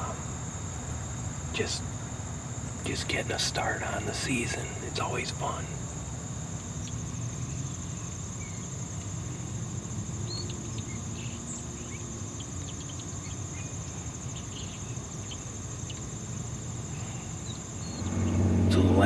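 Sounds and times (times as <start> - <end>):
insect chorus trilling: 0.0 - 19.0
bird chirps: 10.3 - 16.1, 17.0 - 19.0
low outdoor rumble: 17.6 - 19.0.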